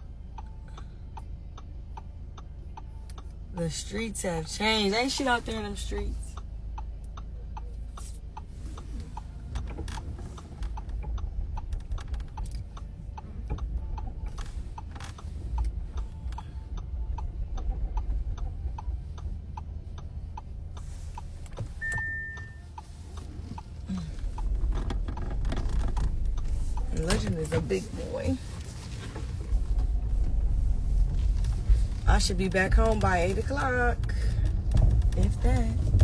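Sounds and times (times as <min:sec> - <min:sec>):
car rumble: 0:00.0 - 0:36.0
turn signal ticking: 0:00.0 - 0:36.0
short high beep: 0:21.8 - 0:22.6.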